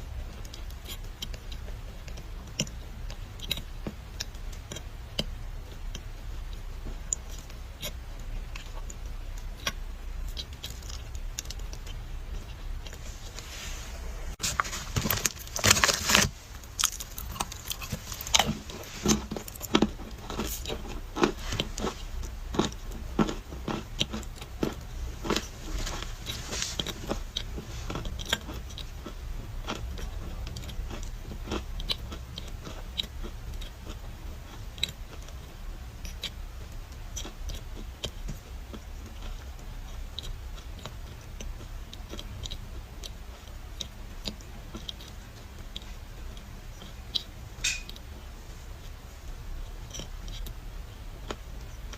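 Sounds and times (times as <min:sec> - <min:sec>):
dry clay crunching and crumbling: 0:14.3 - 0:28.8.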